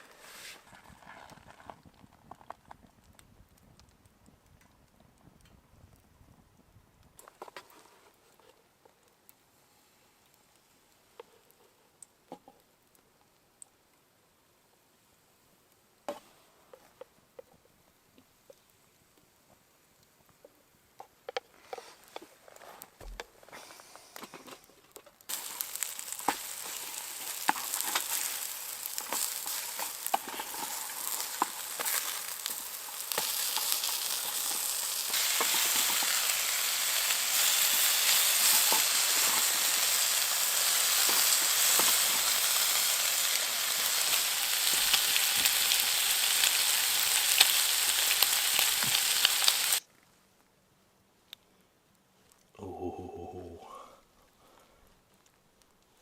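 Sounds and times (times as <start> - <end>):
food sizzling in a frying pan: 25.3 - 49.8.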